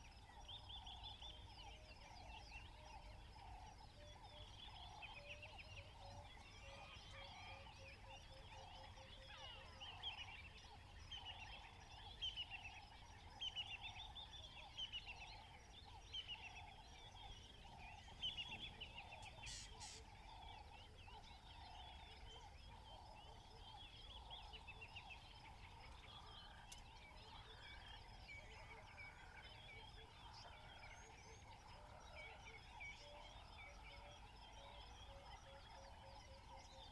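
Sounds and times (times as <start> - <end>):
birds chirping: 16.3 - 27.9.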